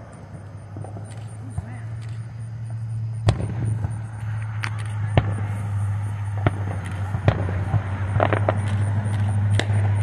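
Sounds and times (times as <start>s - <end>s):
steady low hum: 0.0s - 10.0s
firework shells bursting: 3.2s - 10.0s.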